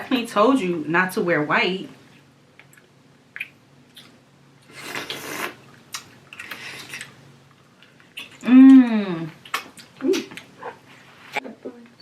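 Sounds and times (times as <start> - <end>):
wet eating sounds: 2.6 - 10.9
slurping: 4.7 - 5.6.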